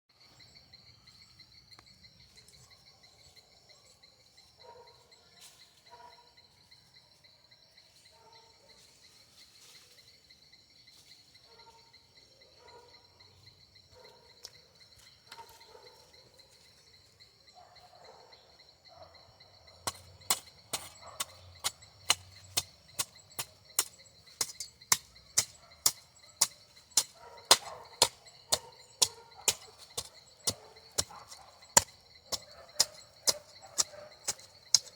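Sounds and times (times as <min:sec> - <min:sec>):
insects trilling: 0:00.1 - 0:34.9
hand tool striking: 0:19.8 - 0:34.9.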